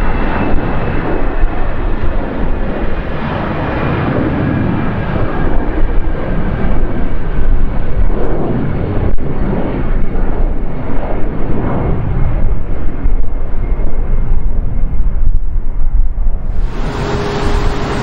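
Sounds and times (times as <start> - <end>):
jet engines rumbling: 0.0 - 18.0
faint steady whine: 16.4 - 18.0.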